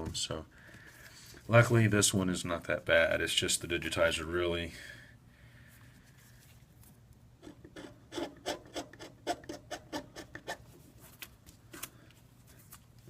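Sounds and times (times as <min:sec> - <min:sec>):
scraping strokes on tablet housing: 0:07.4 - 0:10.7.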